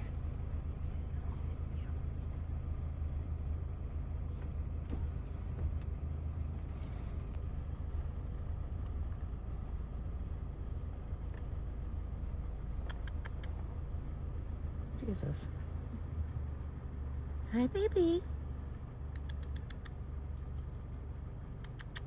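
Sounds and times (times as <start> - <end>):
vehicle engine idling: 0.0 - 22.0
light clicks: 12.8 - 13.7, 19.1 - 20.0, 21.6 - 22.0.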